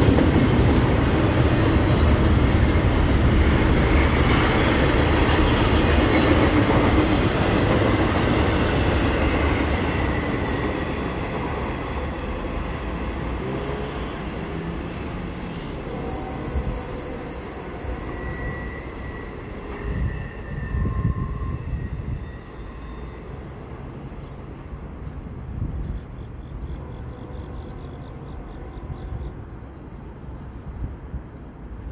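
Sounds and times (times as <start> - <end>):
freight train rolling on rails: 0.0 - 31.9
high-pitched wheel squeals: 11.2 - 26.8.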